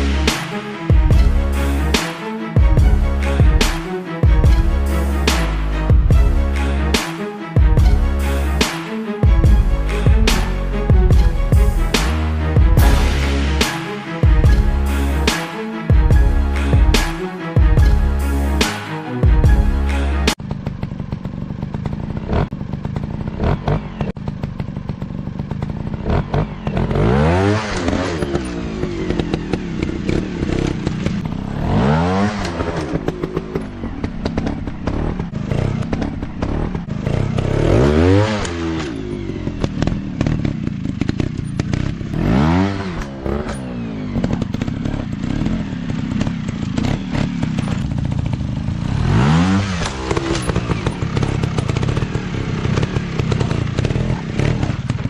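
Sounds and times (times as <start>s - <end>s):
dirt bike engine revving: 19.4s - 55.0s.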